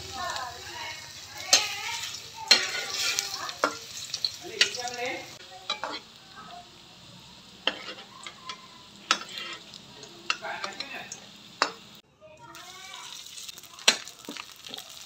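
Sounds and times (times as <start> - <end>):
oil sizzling in a wok: 0.0 - 15.0
metal spatula scraping a pan: 0.8 - 4.9, 5.6 - 6.1, 7.6 - 11.8.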